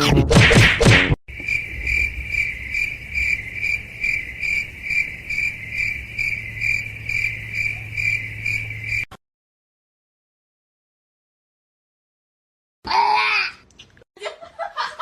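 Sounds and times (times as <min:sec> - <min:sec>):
cricket chirping: 0:01.3 - 0:09.1.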